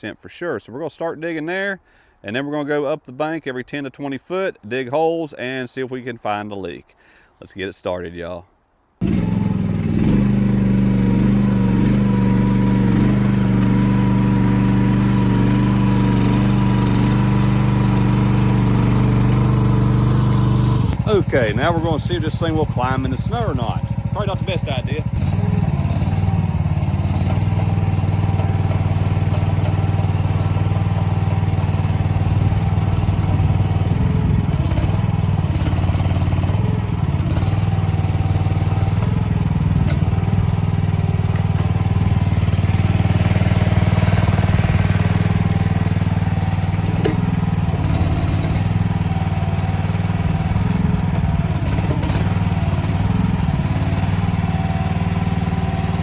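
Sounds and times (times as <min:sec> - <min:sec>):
diesel engine running under load: 0:09.0 - 0:56.0
short knocks: 0:46.8 - 0:48.8.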